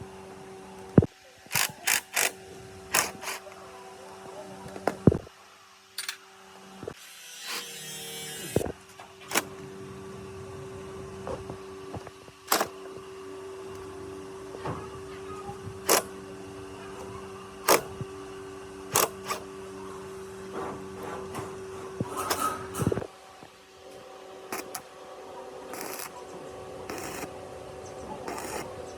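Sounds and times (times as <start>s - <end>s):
small electric motor humming: 1.0s - 3.5s, 6.8s - 9.5s, 15.0s - 18.2s, 18.9s - 19.5s, 24.5s - 24.9s, 25.7s - 26.2s, 26.8s - 28.9s
sharp metallic clicks: 1.5s - 3.4s, 12.5s - 12.7s, 15.8s - 16.1s, 17.6s - 17.9s, 18.9s - 19.4s.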